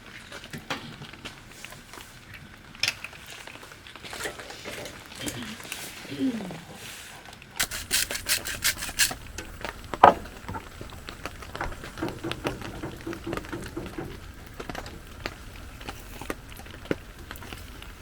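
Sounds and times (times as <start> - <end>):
rasping rubbing strokes: 7.6 - 9.7.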